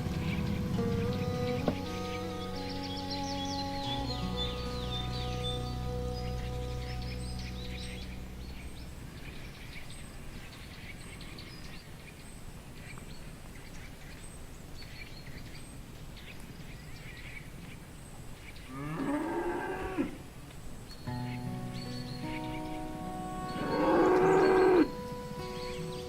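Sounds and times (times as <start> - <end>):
low background noise: 0.0 - 26.0
cow mooing: 18.7 - 20.2, 23.5 - 25.0.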